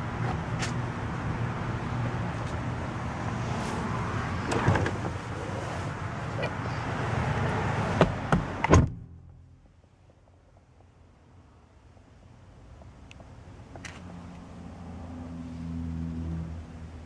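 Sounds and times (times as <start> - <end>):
outside noise: 0.0 - 17.0
car door shutting: 4.3 - 5.3, 7.9 - 9.0
car door clunks: 4.4 - 5.2, 8.0 - 9.1.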